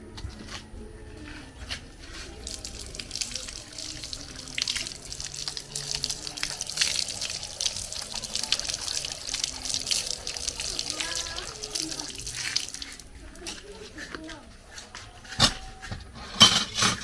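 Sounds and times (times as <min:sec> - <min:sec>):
water running and splashing: 0:01.7 - 0:15.0.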